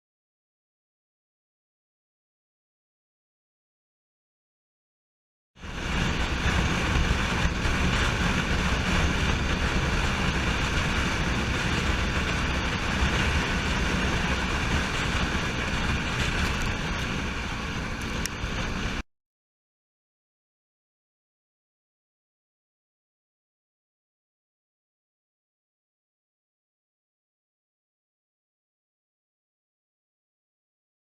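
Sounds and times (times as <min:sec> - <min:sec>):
vehicle road and wind noise: 0:05.6 - 0:19.0.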